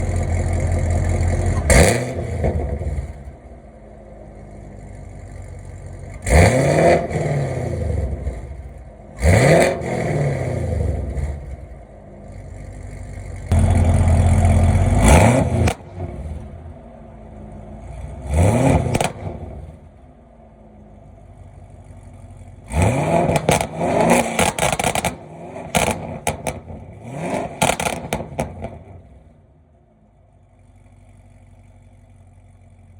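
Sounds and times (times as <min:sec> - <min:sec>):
car engine revving: 0:00.0 - 0:31.4
exhaust crackles and pops: 0:22.8 - 0:29.1.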